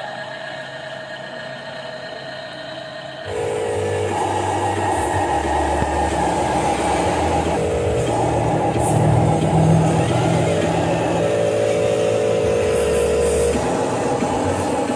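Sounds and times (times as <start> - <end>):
vehicle engine running: 3.3 - 14.9.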